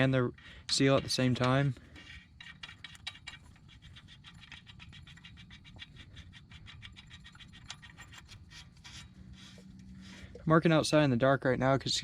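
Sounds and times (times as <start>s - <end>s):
ratchet wrench clicking: 0.0s - 9.1s.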